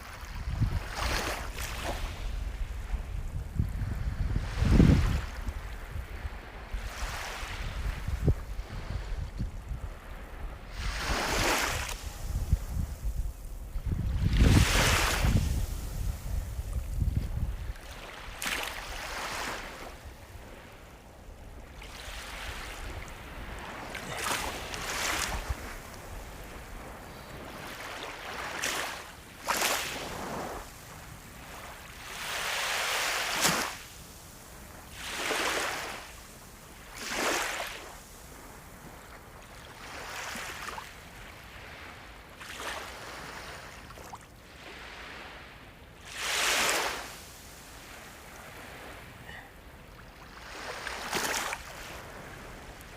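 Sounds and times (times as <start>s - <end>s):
ocean waves breaking: 4.2s - 52.9s.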